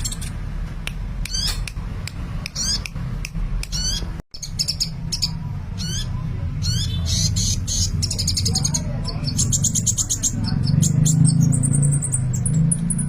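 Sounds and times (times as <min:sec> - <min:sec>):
sunbird chirps and trills: 0:03.7 - 0:13.0.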